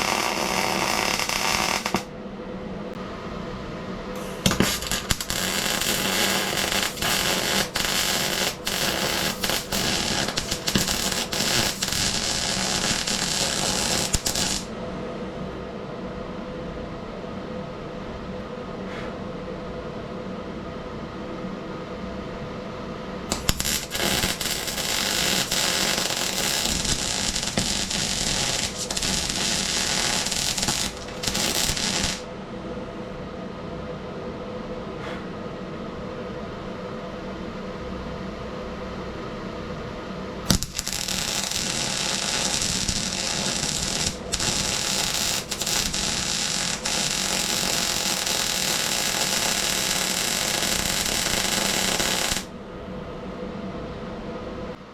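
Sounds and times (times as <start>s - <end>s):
welder arc crackling: 0.0s - 2.1s, 4.2s - 14.7s, 23.3s - 32.3s, 40.5s - 52.5s
steady hum: 0.0s - 54.9s.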